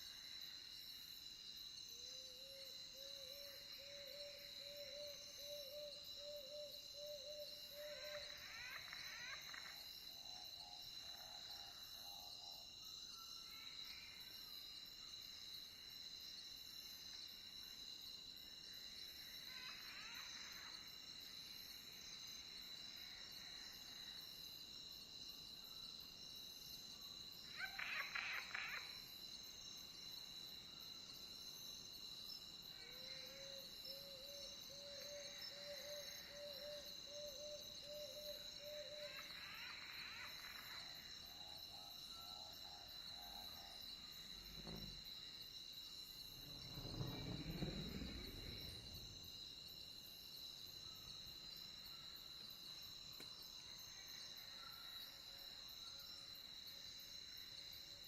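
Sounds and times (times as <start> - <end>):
crickets chirring: 0.0 - 58.0
animal calls: 27.5 - 29.0.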